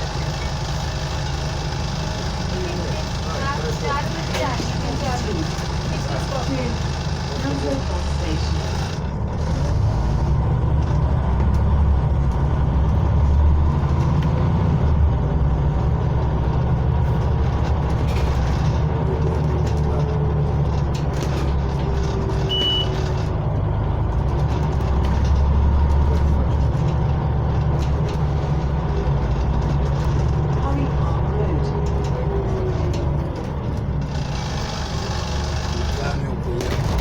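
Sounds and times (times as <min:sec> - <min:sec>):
bus engine drone: 0:00.0 - 0:37.0
short high beep: 0:22.5 - 0:23.0.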